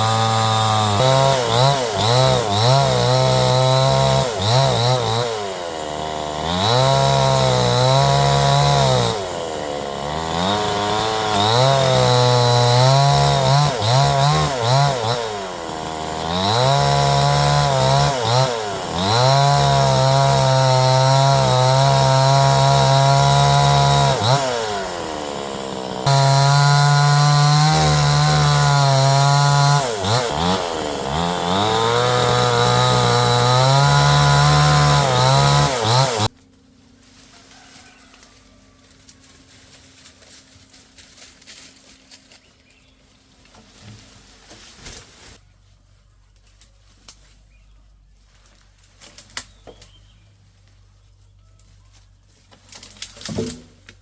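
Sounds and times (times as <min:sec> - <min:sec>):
chainsaw cutting wood: 0:00.0 - 0:36.7, 0:52.6 - 0:54.0.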